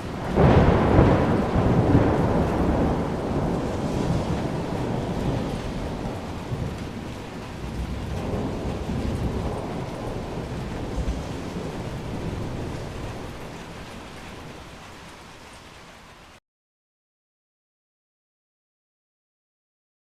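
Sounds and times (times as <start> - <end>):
rolling thunder: 0.0 - 15.4
steady rain: 0.0 - 16.4.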